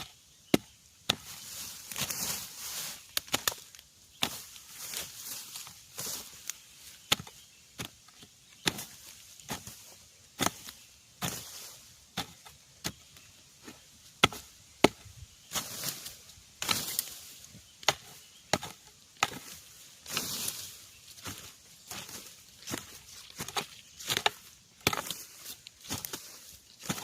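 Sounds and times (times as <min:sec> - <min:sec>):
rustling: 0:01.1 - 0:27.0
blade chopping into soil: 0:07.1 - 0:08.0, 0:12.1 - 0:13.0, 0:14.2 - 0:15.7, 0:17.8 - 0:19.6, 0:22.7 - 0:25.2.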